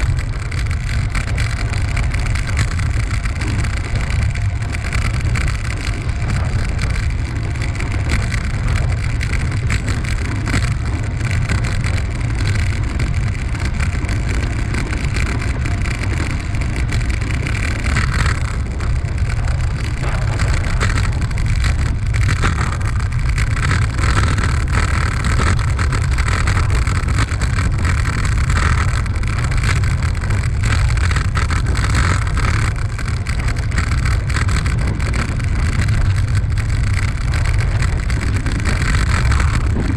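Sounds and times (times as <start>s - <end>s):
rolling noise: 0.0s - 39.9s
wind buffeting microphone: 0.0s - 39.9s.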